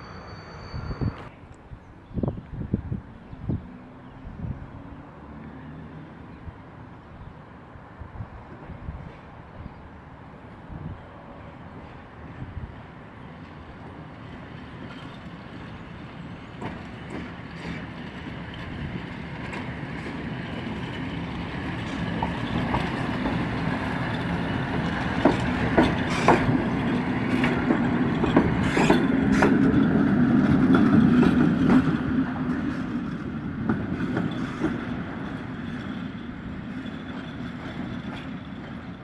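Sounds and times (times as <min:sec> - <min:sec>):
train passing: 0:00.0 - 0:01.4, 0:07.5 - 0:39.0
wheels clicking over rail joints: 0:14.4 - 0:39.0.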